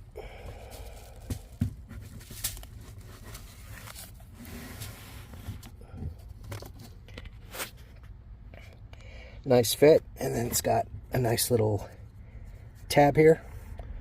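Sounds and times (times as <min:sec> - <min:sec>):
filter rustling and scraping: 0:00.5 - 0:08.7.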